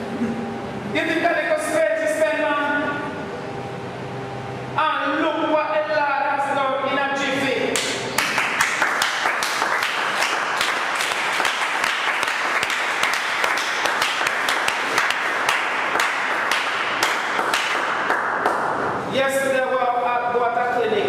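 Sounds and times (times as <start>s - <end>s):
crowd applauding: 7.8s - 18.7s.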